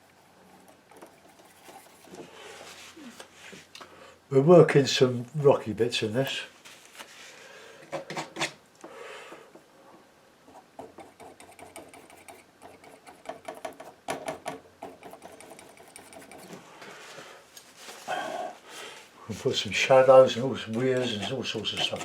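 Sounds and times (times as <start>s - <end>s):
palette knife scraping paint: 0.0s - 2.9s, 10.5s - 14.0s, 14.8s - 16.6s, 20.2s - 22.0s.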